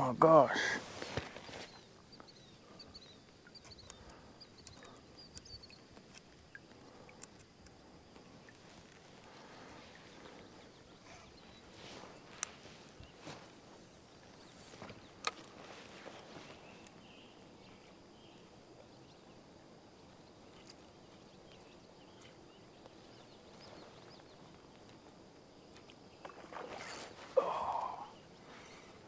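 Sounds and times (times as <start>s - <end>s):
small clicks: 3.6s - 6.3s
faint high hum: 26.4s - 29.0s.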